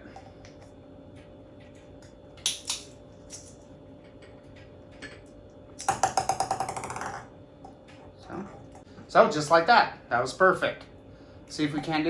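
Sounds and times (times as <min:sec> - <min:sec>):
plastic toy ball clicking on table: 0:05.8 - 0:07.2.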